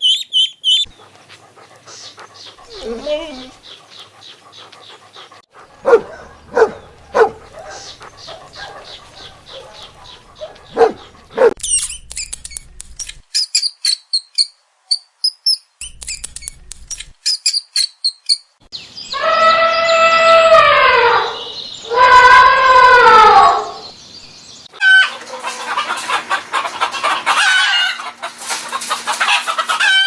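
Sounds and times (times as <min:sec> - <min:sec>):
dog panting: 0:00.9 - 0:11.6
dog barking: 0:05.6 - 0:11.6.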